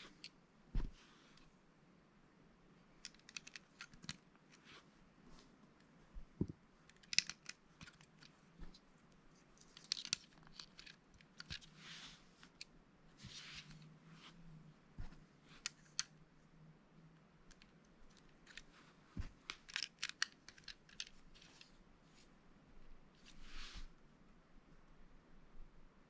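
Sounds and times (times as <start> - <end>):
plastic bricks clicking together: 6.9 - 8.2, 19.5 - 21.2.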